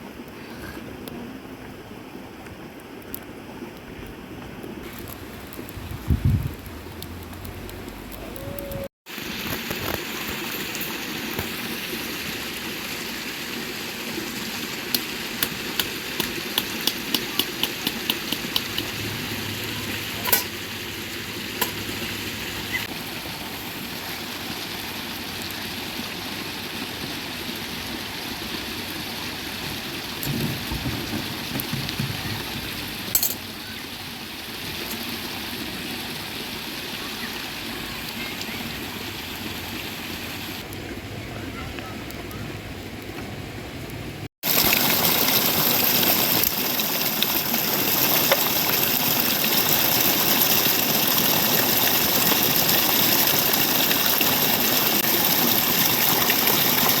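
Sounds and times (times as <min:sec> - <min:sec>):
oil sizzling: 0:04.8 - 0:08.5, 0:09.1 - 0:22.9, 0:44.4 - 0:57.0.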